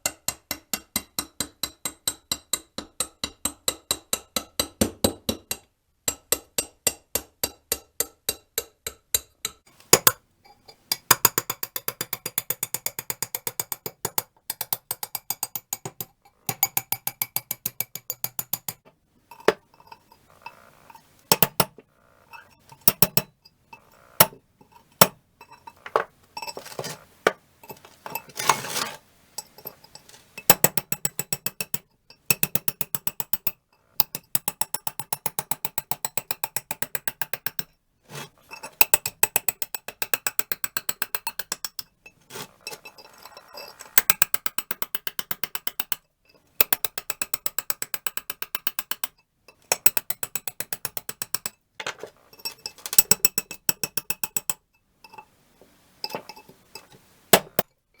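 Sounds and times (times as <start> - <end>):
rapid mechanical clicking: 10.8 - 25.2, 29.4 - 37.7, 38.7 - 46.0, 46.6 - 51.6.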